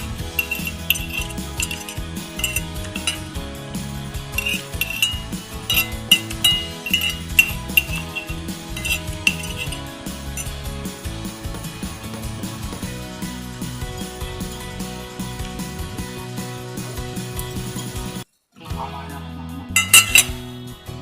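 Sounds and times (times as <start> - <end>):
metal spoon clinking on plate: 0.0 - 3.3, 4.4 - 10.6, 19.8 - 20.4.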